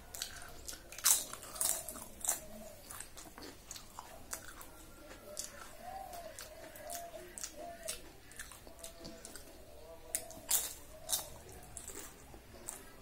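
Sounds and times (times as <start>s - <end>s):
wet chewing and lip smacks: 0.1s - 13.0s.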